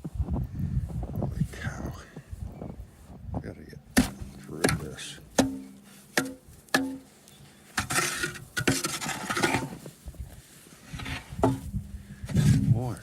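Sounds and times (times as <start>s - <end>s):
rough scraping and rubbing: 4.0s - 13.0s.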